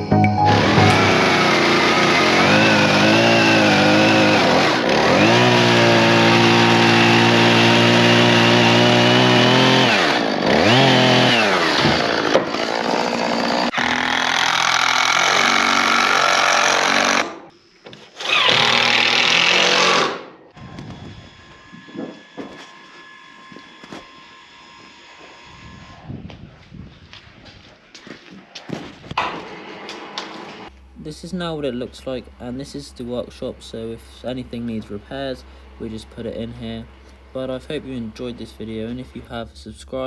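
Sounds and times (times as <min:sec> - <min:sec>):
power saw running: 0:00.4 - 0:17.5, 0:18.2 - 0:20.3, 0:20.9 - 0:26.0.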